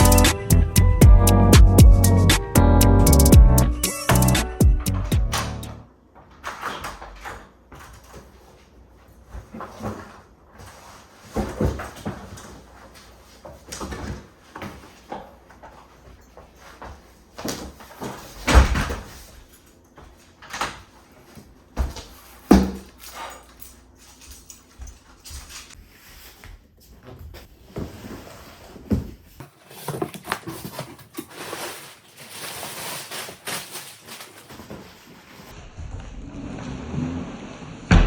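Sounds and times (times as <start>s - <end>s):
packaging rustling: 29.6s - 35.5s.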